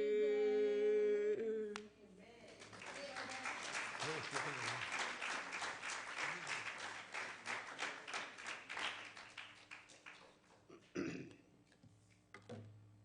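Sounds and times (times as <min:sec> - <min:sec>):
congregation applauding: 0:02.6 - 0:10.6.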